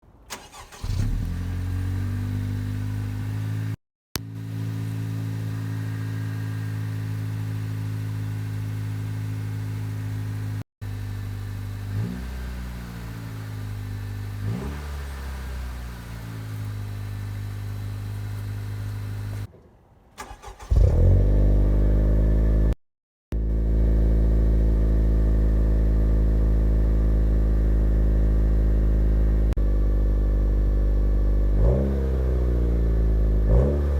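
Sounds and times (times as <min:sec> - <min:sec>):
car engine cold start: 0:00.2 - 0:03.7, 0:09.2 - 0:19.5, 0:20.2 - 0:22.7
engine throttle blips: 0:00.3 - 0:19.5
car engine idling: 0:04.2 - 0:19.5.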